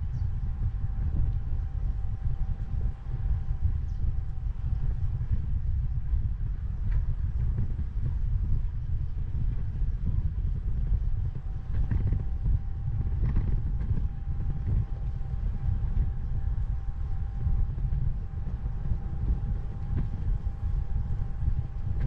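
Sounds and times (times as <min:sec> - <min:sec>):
bicycle tyre noise: 0:00.0 - 0:22.0
faint steady whine: 0:00.0 - 0:22.0
wind buffeting microphone: 0:00.0 - 0:22.0.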